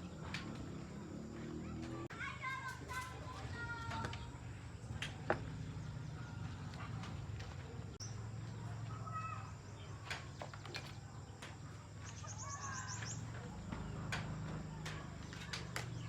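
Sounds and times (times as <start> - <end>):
faint bird chirps: 7.8 - 16.0.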